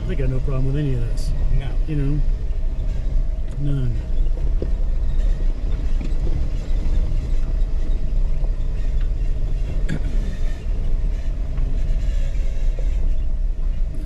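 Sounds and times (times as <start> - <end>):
engine and tyres rumbling on rock: 0.0 - 14.0.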